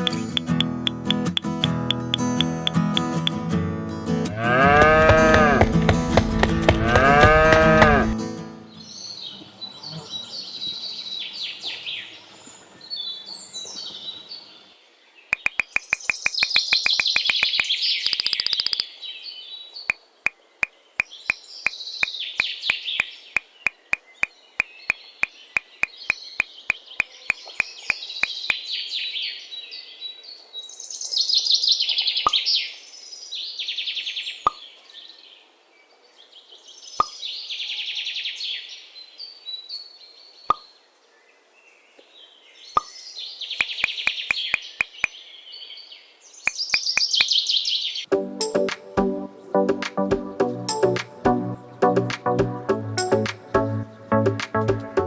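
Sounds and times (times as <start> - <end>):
birds chirping: 0.0 - 3.4, 4.3 - 55.0
sharp clicks: 0.0 - 3.4, 15.3 - 18.9, 22.4 - 28.6, 43.6 - 45.1, 46.5 - 47.4
cow mooing: 4.3 - 5.8, 6.8 - 8.2.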